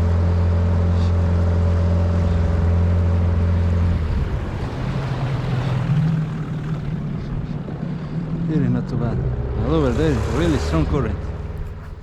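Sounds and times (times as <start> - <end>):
outboard motor running: 9.7 - 12.0.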